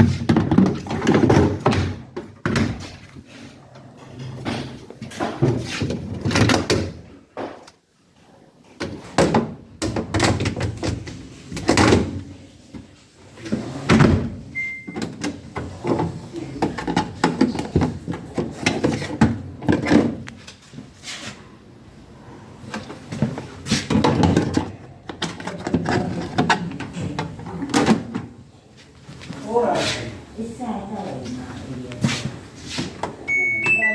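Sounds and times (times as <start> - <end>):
short electronic beep: 33.3 - 33.9.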